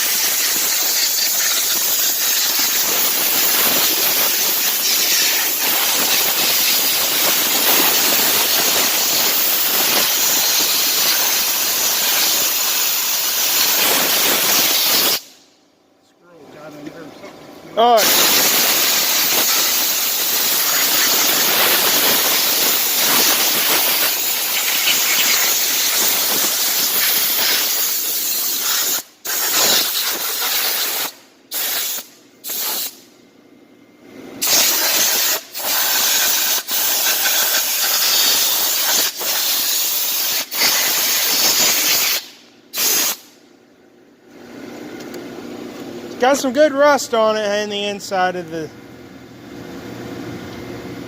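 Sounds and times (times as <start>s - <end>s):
pressure washer spraying water: 0.0s - 15.3s, 18.0s - 33.0s, 34.4s - 43.3s.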